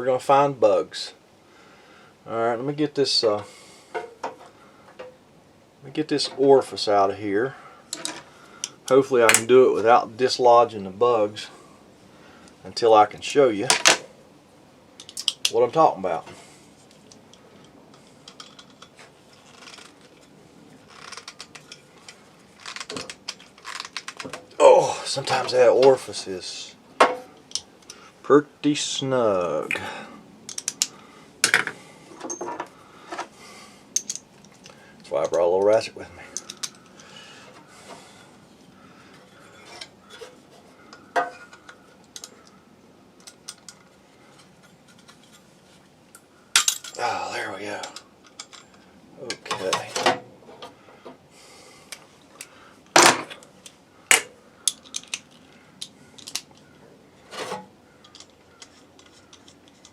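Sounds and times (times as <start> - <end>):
hand tool clicking and scraping metal: 57.3 - 59.9.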